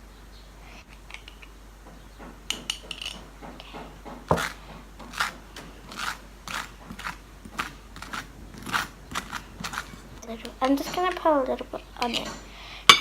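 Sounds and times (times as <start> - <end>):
small objects scraping on a table: 4.3 - 10.2.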